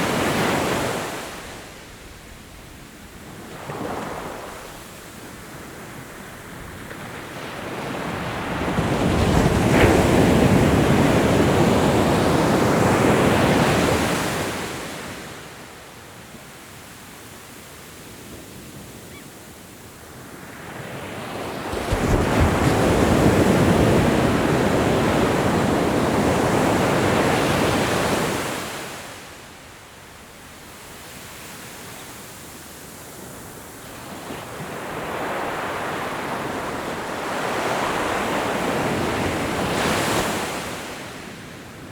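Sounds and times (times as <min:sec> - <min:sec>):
ocean waves breaking: 0:03.5 - 0:15.4, 0:20.3 - 0:29.1.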